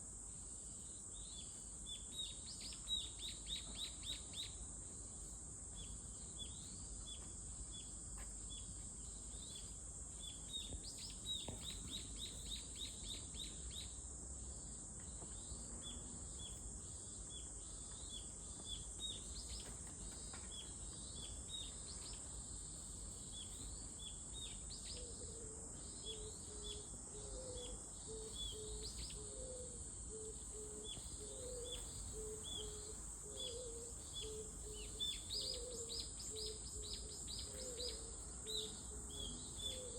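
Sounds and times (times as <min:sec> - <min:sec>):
small birds chirping: 0:15.1 - 0:39.9.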